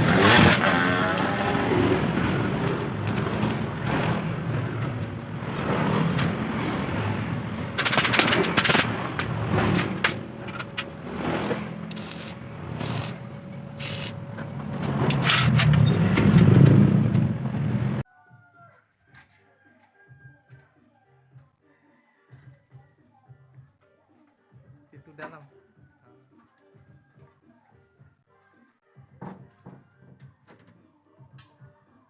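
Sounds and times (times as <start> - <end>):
jigsaw cutting metal: 0.0 - 17.0.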